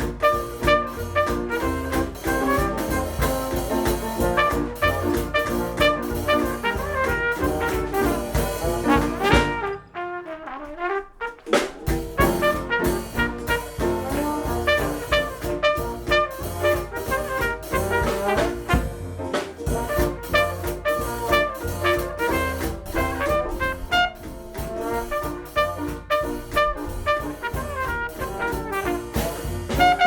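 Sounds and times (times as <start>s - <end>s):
jazz band playing: 0.0s - 30.0s
trumpet leading: 0.0s - 30.0s.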